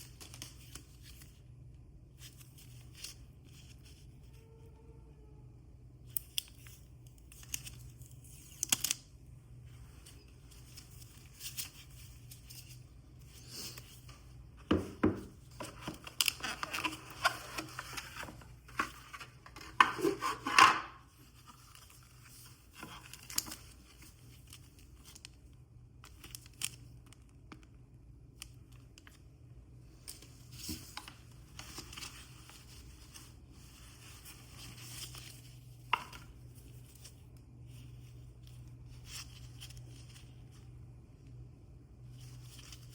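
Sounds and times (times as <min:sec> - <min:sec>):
packaging tearing and rustling: 0:15.5 - 0:20.6
packaging clicks and scrapes: 0:15.5 - 0:20.8.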